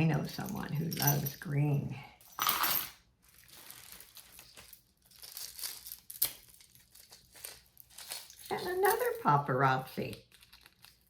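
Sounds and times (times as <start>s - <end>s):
packaging crinkling and rustling: 3.1s - 9.2s, 10.0s - 11.0s.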